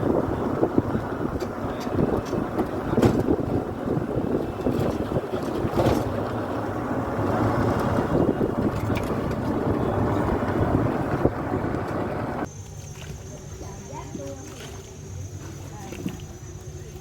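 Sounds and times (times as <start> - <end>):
wind buffeting microphone: 0.0 - 12.5
boat motor: 0.0 - 17.0
water noise: 0.0 - 17.0.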